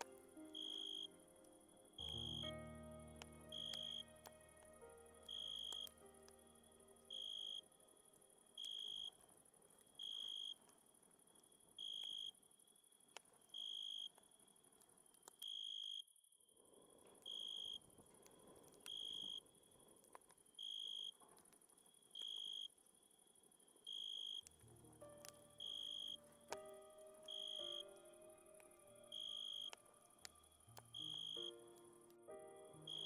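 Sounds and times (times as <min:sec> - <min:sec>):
cricket chirping: 0:00.0 - 0:02.5, 0:03.1 - 0:09.2, 0:10.0 - 0:10.6, 0:11.3 - 0:14.6, 0:17.2 - 0:17.9, 0:20.6 - 0:21.2, 0:21.9 - 0:24.5, 0:25.5 - 0:31.6
steady high hiss: 0:00.0 - 0:09.1, 0:24.5 - 0:33.0
campfire crackling: 0:00.0 - 0:09.2, 0:24.4 - 0:32.1.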